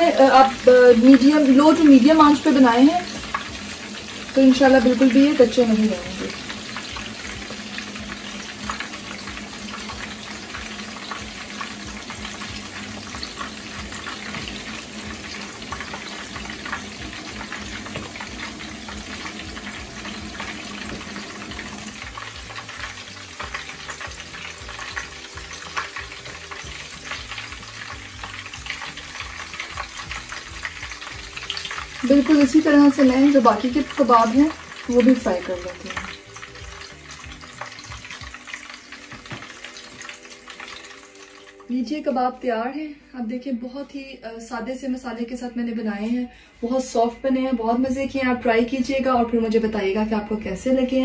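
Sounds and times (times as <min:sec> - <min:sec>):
food sizzling in hot oil: 0:00.0 - 0:42.6
spatula scraping and knocking in pan: 0:06.6 - 0:32.0, 0:35.9 - 0:40.2.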